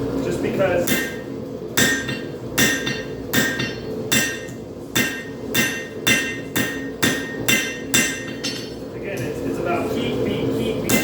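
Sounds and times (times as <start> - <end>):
hammer ringing on anvil: 0.8 - 8.8.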